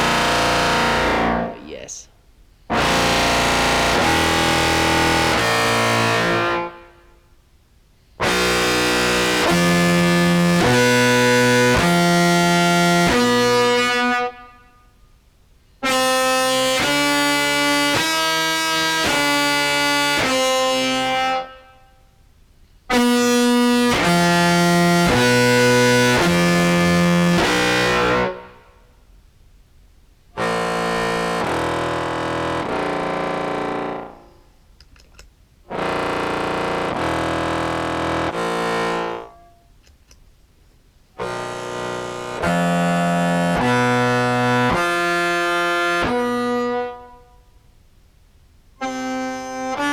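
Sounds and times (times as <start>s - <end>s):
distorted clarinet notes: 0.0s - 1.6s, 2.7s - 6.9s, 8.2s - 14.5s, 15.8s - 21.6s, 22.9s - 28.7s, 30.4s - 34.5s, 35.7s - 39.8s, 41.2s - 47.5s, 48.8s - 49.9s.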